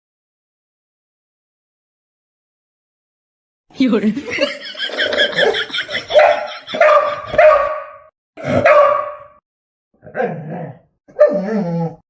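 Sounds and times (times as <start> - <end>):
dog barking: 5.4 - 9.4, 11.1 - 11.5.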